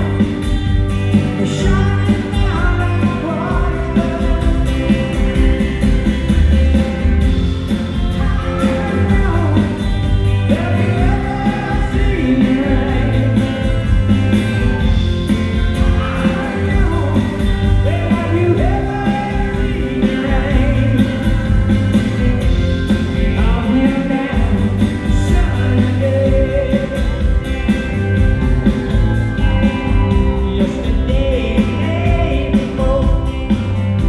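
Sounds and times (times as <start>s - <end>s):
live rock band playing: 0.0s - 34.0s
man singing: 1.3s - 5.4s, 8.0s - 22.4s, 23.0s - 27.5s, 29.4s - 33.6s.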